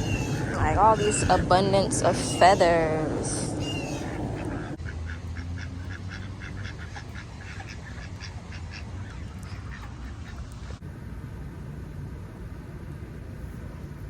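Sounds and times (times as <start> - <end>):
ducks quacking: 0.0 - 10.8.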